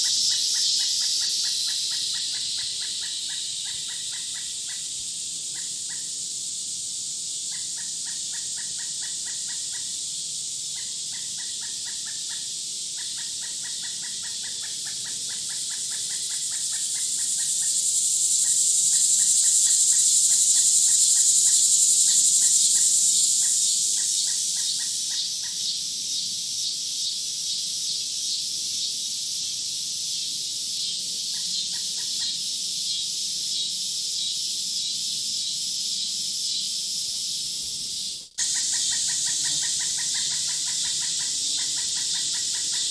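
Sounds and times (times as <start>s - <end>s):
bird chattering: 0.0s - 4.9s, 13.0s - 25.7s, 38.4s - 42.9s
insect chorus buzzing: 0.0s - 42.9s.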